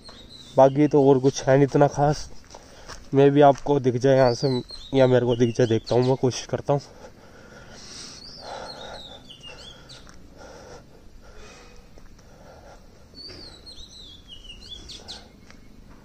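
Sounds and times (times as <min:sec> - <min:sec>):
songbird warbling: 0:04.2 - 0:06.4, 0:07.9 - 0:10.2, 0:13.1 - 0:15.7.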